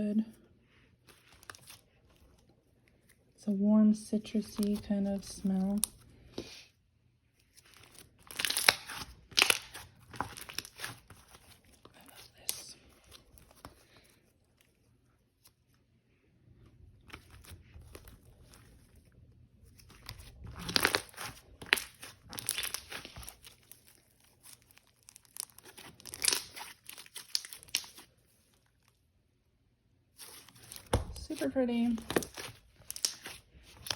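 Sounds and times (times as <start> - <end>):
slime squished by hand: 7.6 - 13.7, 19.7 - 28.9, 30.1 - 33.9.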